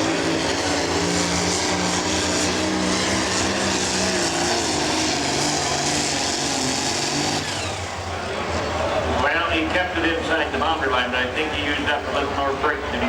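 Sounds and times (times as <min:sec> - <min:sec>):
diesel engine running hard: 0:00.0 - 0:13.0.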